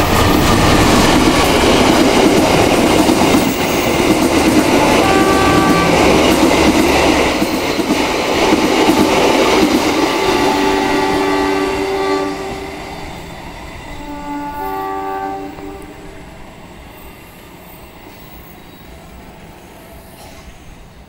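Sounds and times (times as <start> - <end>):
train wheel and track noise: 0.0 - 21.0
train horn blasts: 4.8 - 6.7, 10.1 - 13.2, 13.9 - 16.3.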